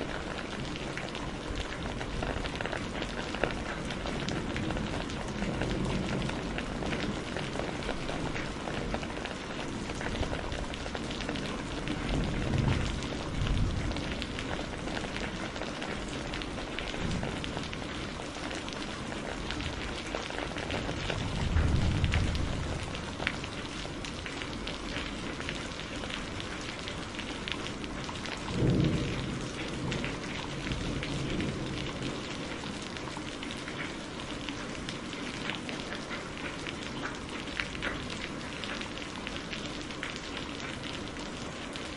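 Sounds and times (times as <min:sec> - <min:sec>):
steady rain: 0:00.0 - 0:41.9
thunder rolling: 0:11.5 - 0:16.4, 0:20.8 - 0:23.6, 0:28.5 - 0:32.3.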